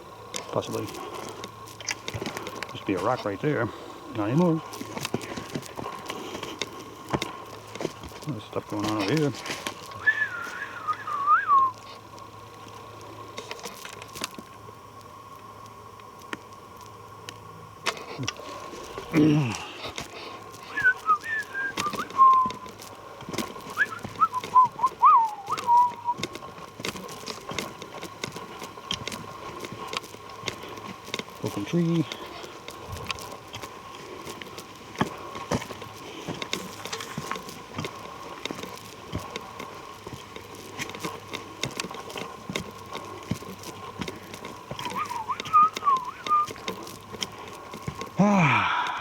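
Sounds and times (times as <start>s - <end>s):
footsteps crunching on trail: 0.0s - 49.0s
short whistled notes: 10.0s - 11.8s, 20.7s - 22.6s, 23.8s - 26.2s, 44.8s - 46.6s.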